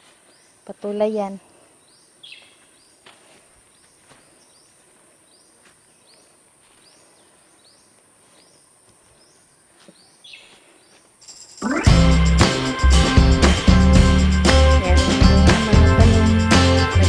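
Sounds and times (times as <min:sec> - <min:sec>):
high-pitched insect drone: 0:11.2 - 0:17.0.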